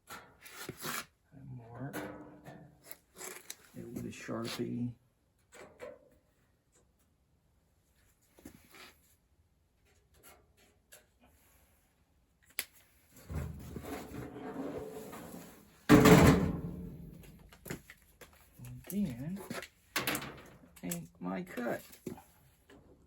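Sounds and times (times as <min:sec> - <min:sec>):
loud thump: 0:15.9 - 0:17.2
sheet metal rattling: 0:15.9 - 0:17.4.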